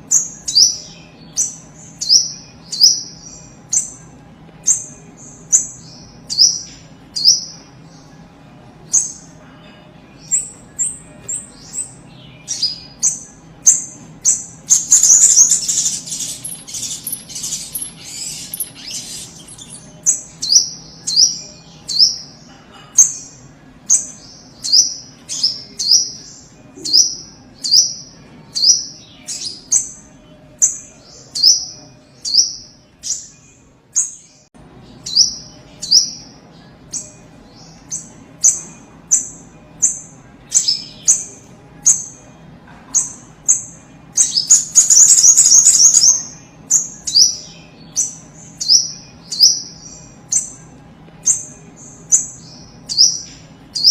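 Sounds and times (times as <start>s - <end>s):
bird chirping: 10.1s - 42.3s, 43.0s - 53.9s
bird rapid chattering: 12.5s - 20.6s, 43.0s - 47.4s.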